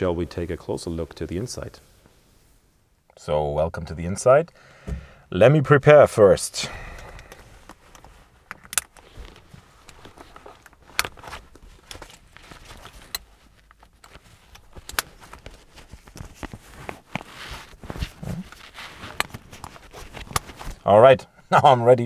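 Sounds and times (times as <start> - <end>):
rustling: 7.2 - 21.0.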